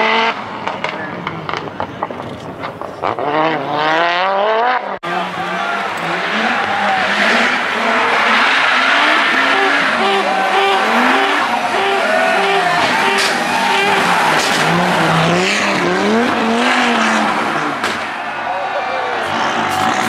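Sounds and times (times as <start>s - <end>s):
rally car engine revving: 0.0s - 18.2s, 19.1s - 20.0s
tyres on gravel: 5.0s - 18.4s.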